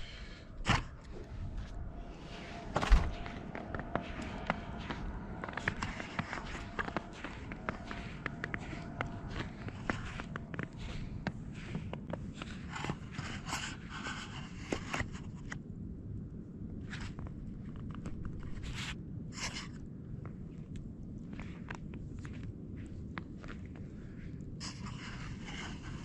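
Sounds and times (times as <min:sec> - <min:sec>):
wind on microphone: 0:00.0 - 0:15.6
crunching and scraping in snow: 0:01.0 - 0:15.6, 0:22.9 - 0:26.0.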